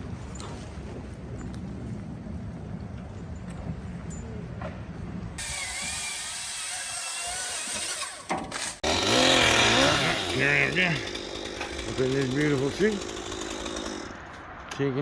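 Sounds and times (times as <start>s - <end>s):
power saw running: 5.4s - 14.3s.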